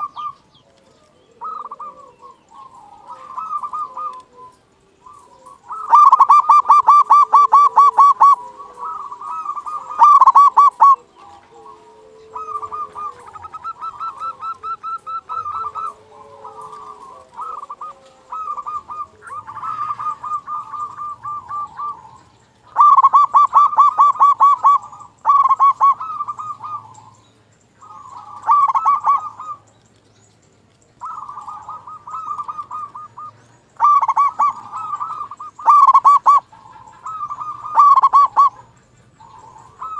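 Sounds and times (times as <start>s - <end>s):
dove cooing: 0.0s - 29.8s, 30.6s - 39.9s.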